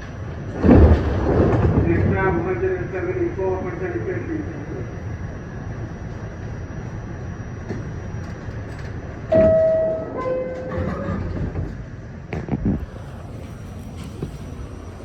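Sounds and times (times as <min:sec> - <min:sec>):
subway car rumbling: 0:00.0 - 0:15.0
two-note descending door chime: 0:09.3 - 0:10.9.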